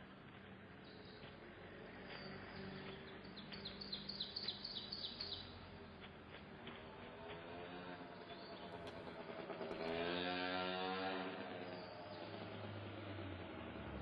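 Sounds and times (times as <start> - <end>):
faint outdoor background noise: 0.0 - 14.0
small bird chirping: 2.0 - 5.6.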